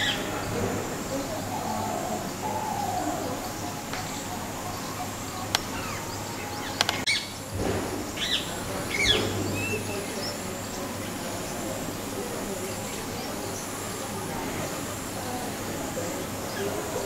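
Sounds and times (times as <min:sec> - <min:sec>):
background hiss: 0:00.0 - 0:17.0
sharp clicks: 0:06.8 - 0:07.1.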